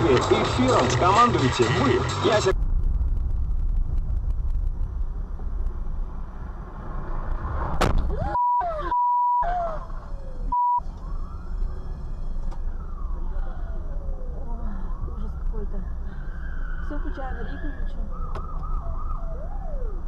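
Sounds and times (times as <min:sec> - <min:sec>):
road and engine rumble: 0:00.0 - 0:20.0
siren wailing: 0:08.1 - 0:20.0
censor bleeps: 0:08.2 - 0:09.5, 0:10.5 - 0:10.8.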